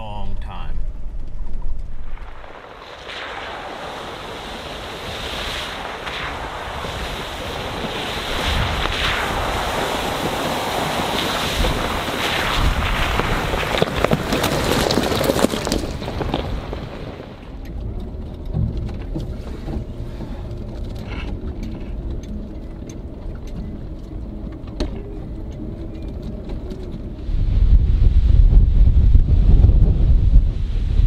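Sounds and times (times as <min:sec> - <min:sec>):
wind buffeting microphone: 0:00.9 - 0:31.0
vehicle driving low hum: 0:17.1 - 0:31.0.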